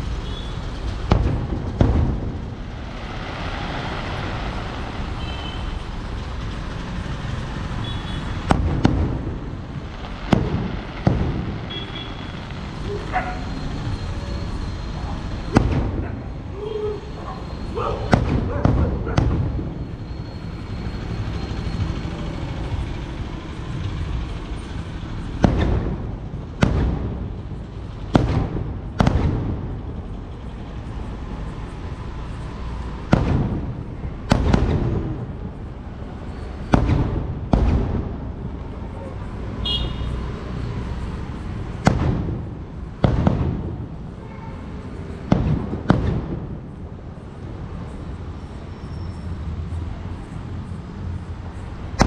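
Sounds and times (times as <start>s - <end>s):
fireworks bangs with echo: 0.2s - 6.8s, 7.8s - 13.9s, 15.3s - 16.6s, 17.4s - 20.0s, 24.6s - 30.0s, 32.7s - 38.4s, 41.7s - 46.8s.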